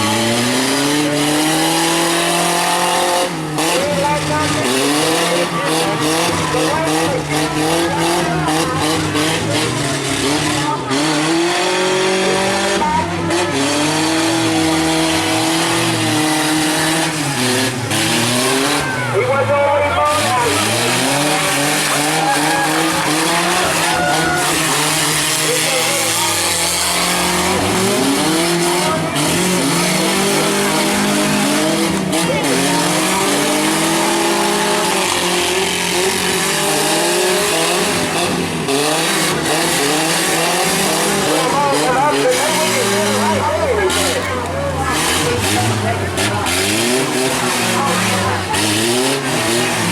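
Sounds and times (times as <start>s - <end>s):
constant noisy din: 0.0s - 49.9s
truck engines revving: 0.0s - 49.9s.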